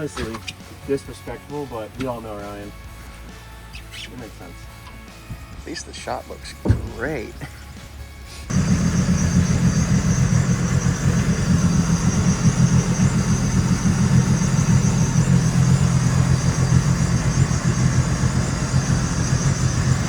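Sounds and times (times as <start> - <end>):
boat engine idling: 8.5 - 20.0
thin steady whine: 8.5 - 20.0.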